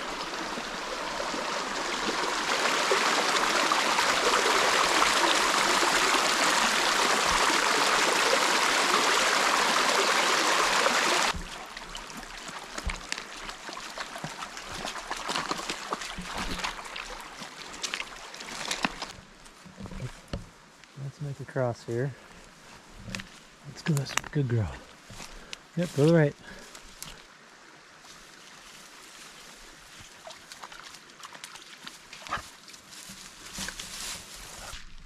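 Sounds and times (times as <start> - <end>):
river water rushing over rocks: 0.0 - 19.1.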